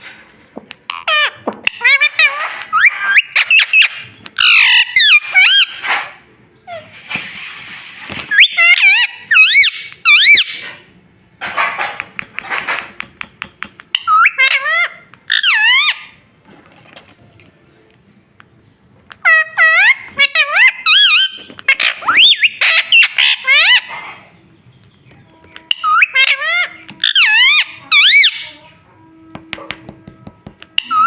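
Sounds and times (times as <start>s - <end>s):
parakeet whistles and squawks: 0.9s - 10.9s, 13.8s - 16.2s, 19.1s - 28.8s, 30.6s - 31.0s.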